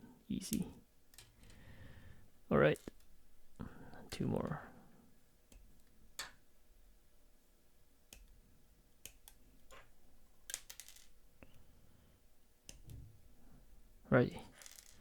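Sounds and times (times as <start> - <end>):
nippers clicking snipping plastic: 9.0 - 9.8.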